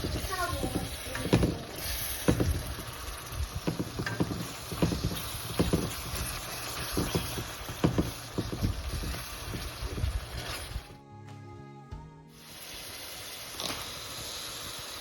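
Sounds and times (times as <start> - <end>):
spoon stirring in cooking pot: 0.0 - 10.8
food sizzling: 0.0 - 11.0, 12.3 - 15.0.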